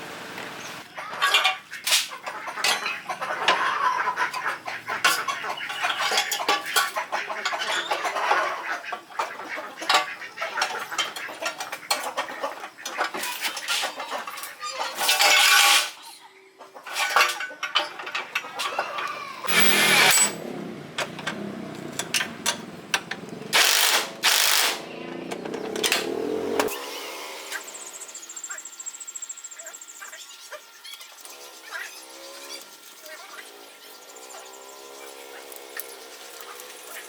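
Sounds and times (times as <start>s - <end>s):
chickens clucking: 0.9s - 15.1s, 16.0s - 19.5s.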